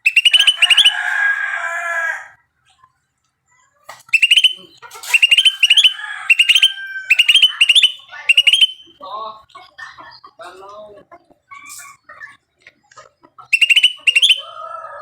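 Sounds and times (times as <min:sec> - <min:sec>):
bird warbling call: 0:00.0 - 0:01.2, 0:04.1 - 0:09.0, 0:13.5 - 0:14.6
songbird chirping: 0:00.0 - 0:15.0.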